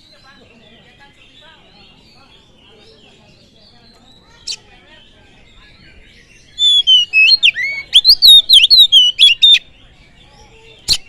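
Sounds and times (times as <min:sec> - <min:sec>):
bird singing whistled notes: 0:03.4 - 0:11.0.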